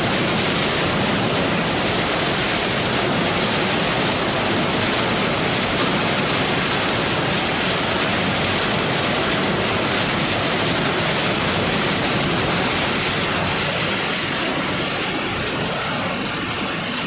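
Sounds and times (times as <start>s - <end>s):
scrap metal shredder running: 0.0s - 17.0s.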